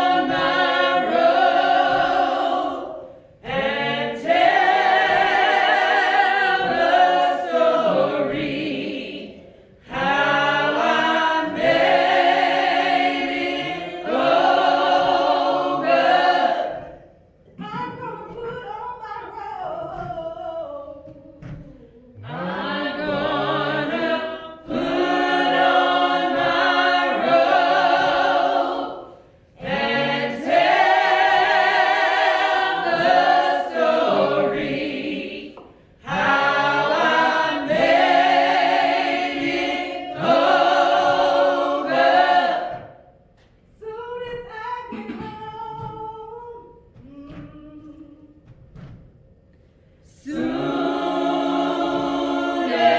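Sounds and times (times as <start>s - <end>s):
church choir singing: 0.0s - 17.1s, 22.1s - 43.2s, 50.1s - 52.9s.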